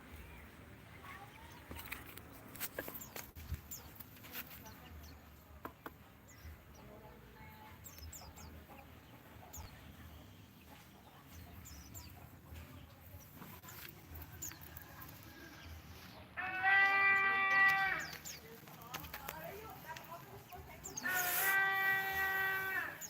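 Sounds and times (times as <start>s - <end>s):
small birds chirping: 0.0s - 23.0s
loud drawn-out animal call: 16.4s - 18.0s, 21.0s - 23.0s.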